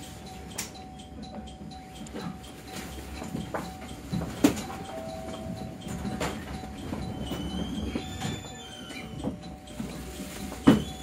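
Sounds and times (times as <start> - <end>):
train running rumble: 0.0 - 11.0
brake squeals: 7.0 - 9.2, 10.7 - 11.0.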